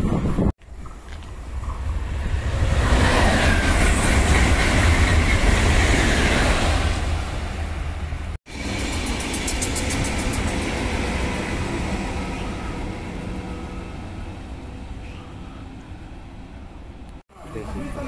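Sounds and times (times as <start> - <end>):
passenger train running past: 1.2 - 18.0
wheels clicking on rails: 8.6 - 11.3.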